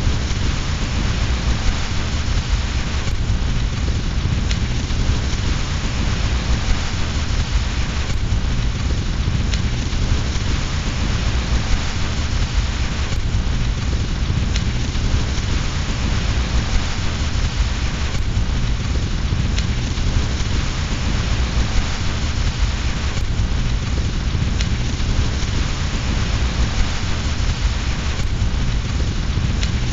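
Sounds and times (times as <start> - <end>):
deep rumble: 0.0 - 29.9
fire crackling and popping: 0.0 - 29.9
steady rain: 0.0 - 29.9.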